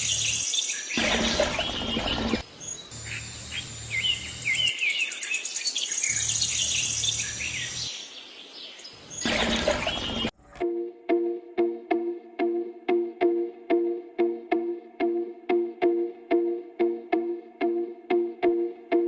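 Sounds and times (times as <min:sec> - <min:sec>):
small birds chirping: 0:00.0 - 0:10.4
music: 0:10.4 - 0:19.0.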